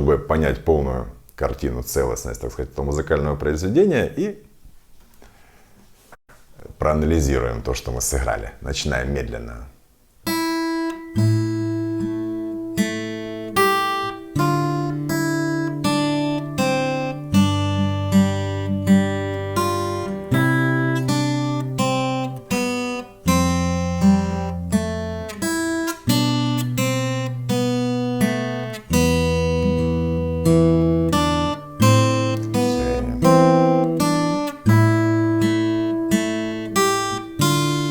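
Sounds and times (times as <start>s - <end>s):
fingerpicked classical guitar: 10.2s - 37.9s.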